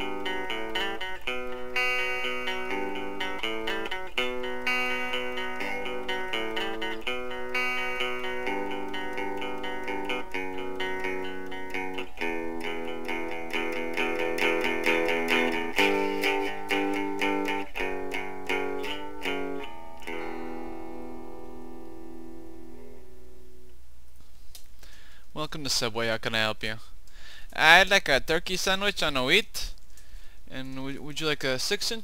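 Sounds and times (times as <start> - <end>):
guitar picked notes and chords: 0.0 - 23.8.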